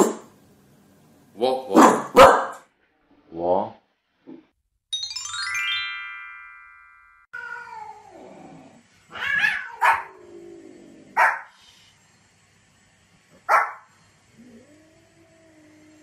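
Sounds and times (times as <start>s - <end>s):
small dog barking sharply: 1.7s - 2.6s, 9.8s - 10.1s, 11.2s - 11.5s, 13.5s - 13.8s.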